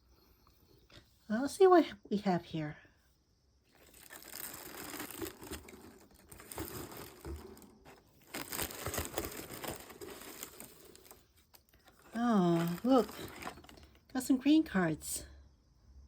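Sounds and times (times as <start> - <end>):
wrapping paper crinkling and tearing: 3.7 - 13.9.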